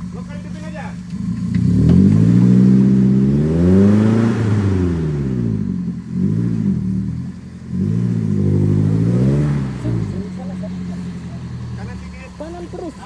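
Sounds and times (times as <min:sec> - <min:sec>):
off-road engine revving: 0:00.0 - 0:13.0.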